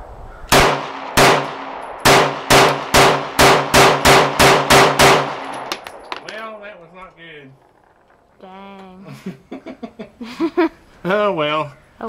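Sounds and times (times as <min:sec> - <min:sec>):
pistol shots: 0:00.5 - 0:06.4.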